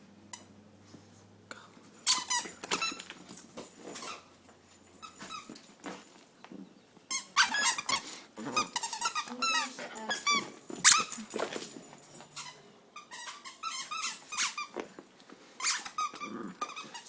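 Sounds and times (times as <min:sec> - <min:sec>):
squeaky dog toy squeaks: 0:02.0 - 0:03.1, 0:07.1 - 0:11.3, 0:12.3 - 0:14.8, 0:15.6 - 0:17.0.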